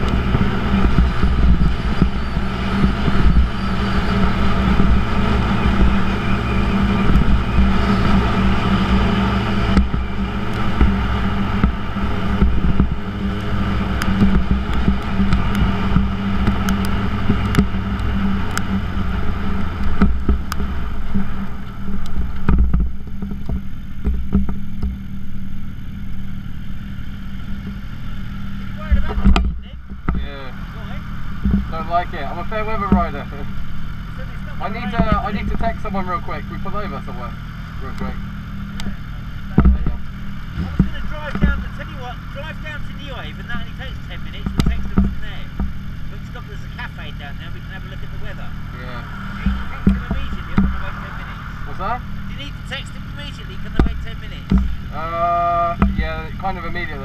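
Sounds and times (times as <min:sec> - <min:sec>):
wind noise on microphone: 0:00.0 - 0:24.9
motorcycle engine running: 0:00.0 - 0:57.0.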